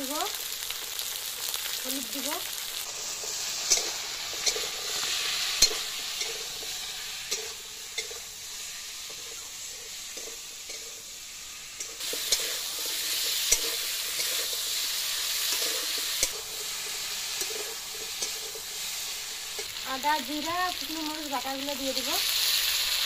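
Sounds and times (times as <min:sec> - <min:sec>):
food sizzling in hot oil: 0:00.0 - 0:23.0
metal spatula stirring: 0:02.9 - 0:11.1, 0:11.7 - 0:19.8.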